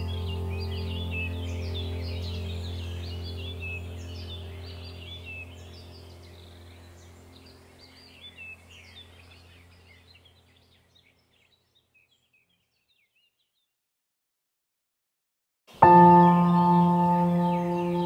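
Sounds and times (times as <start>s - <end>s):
faint low hum: 0.0s - 11.3s
small birds chirping: 0.0s - 13.8s, 15.7s - 18.0s.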